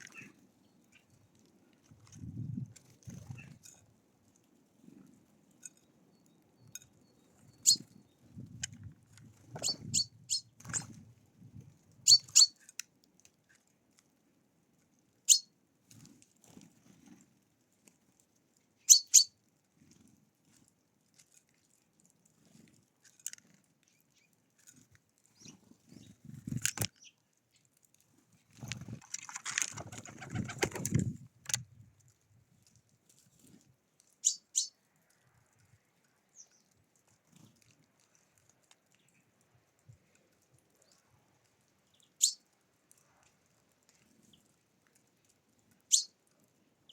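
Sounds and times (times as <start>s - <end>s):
birds chirping: 7.1s - 8.3s, 9.6s - 10.8s, 12.1s - 12.5s, 18.9s - 19.3s
wingbeats flurry: 28.6s - 31.6s.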